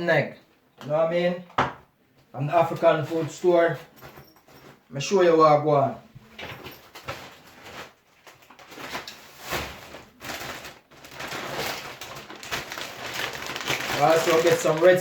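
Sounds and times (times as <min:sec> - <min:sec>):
shopping bags rustling: 0:06.4 - 0:15.0.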